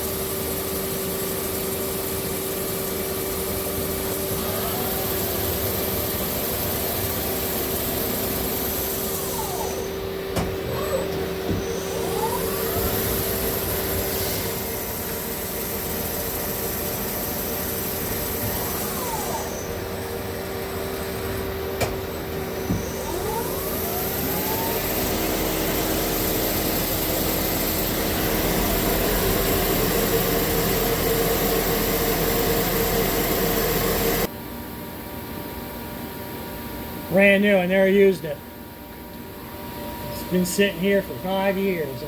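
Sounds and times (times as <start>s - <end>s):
lathe machine whine and hum: 0.0s - 34.4s
deeper machine hum: 1.5s - 34.3s.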